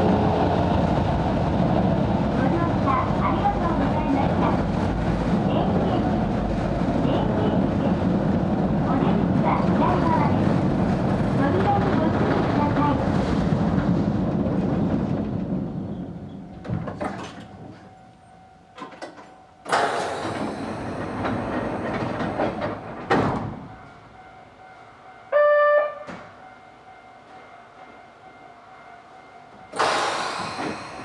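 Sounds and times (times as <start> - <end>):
electric train rumble: 0.0 - 31.0
hiss of air: 29.8 - 31.0.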